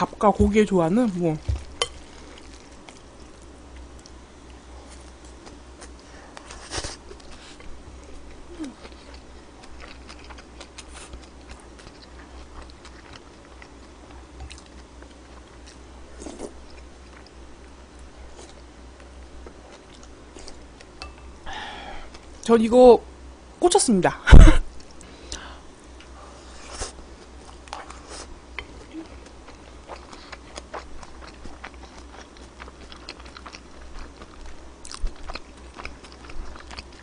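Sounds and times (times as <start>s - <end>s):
faint low hum: 0.0s - 37.0s
person chewing wet mouth sounds: 27.5s - 37.0s.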